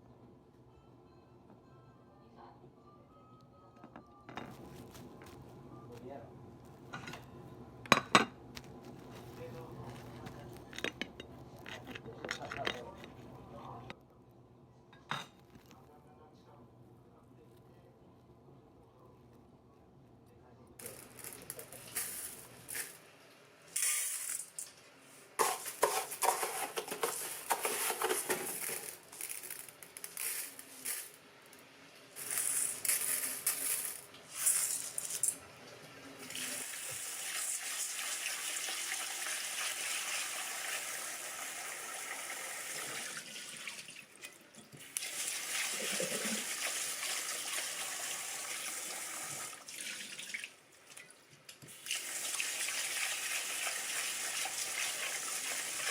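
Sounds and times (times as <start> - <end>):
water running into sink: 36.2 - 51.1, 51.7 - 55.9.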